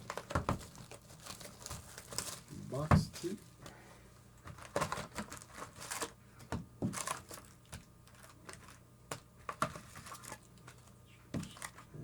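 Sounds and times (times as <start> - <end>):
shrink wrap crinkling and tearing: 0.0 - 2.7, 4.4 - 6.2, 6.9 - 8.8, 9.5 - 12.0.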